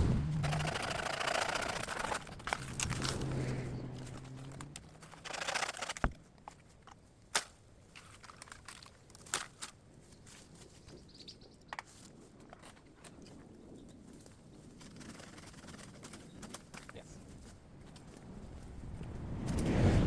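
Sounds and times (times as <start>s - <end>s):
twigs snapping underfoot: 5.9s - 10.7s.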